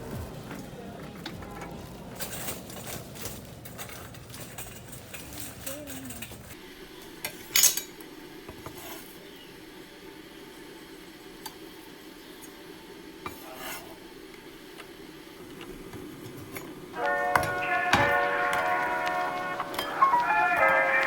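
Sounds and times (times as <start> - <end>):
utensils clinking on dishes: 0.1 - 6.6, 7.2 - 8.0, 16.3 - 21.0.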